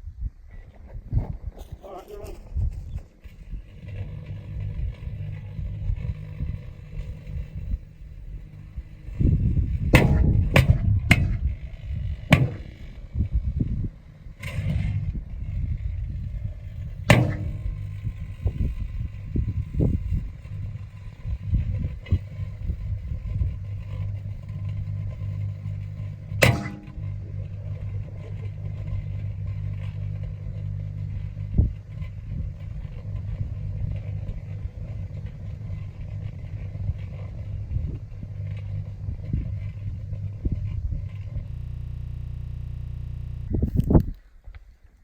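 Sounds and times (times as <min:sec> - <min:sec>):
low rumble: 0:00.0 - 0:44.5
microwave oven humming: 0:03.4 - 0:44.0
dull thump: 0:08.4 - 0:39.8
sharp bang inside microwave: 0:09.2 - 0:13.2, 0:17.1 - 0:18.5, 0:26.4 - 0:28.4.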